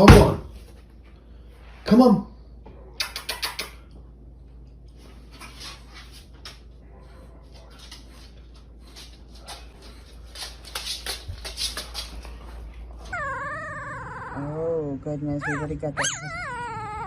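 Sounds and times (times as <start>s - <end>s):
dog whining: 13.0s - 17.0s.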